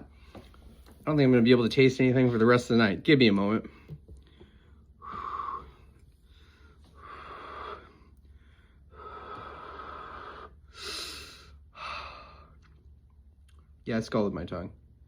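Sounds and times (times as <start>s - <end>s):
man breathing hard through mouth: 4.2s - 12.6s.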